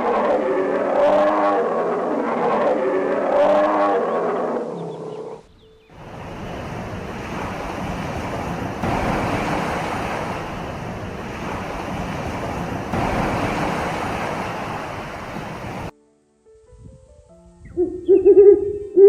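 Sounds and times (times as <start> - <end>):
steady rushing noise: 6.0 - 15.9.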